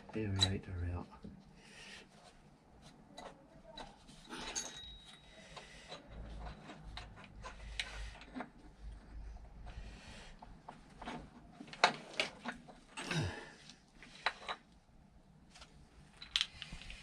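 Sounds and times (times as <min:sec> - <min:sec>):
light clicks and knocks of parts: 0:02.8 - 0:14.8, 0:15.5 - 0:17.0.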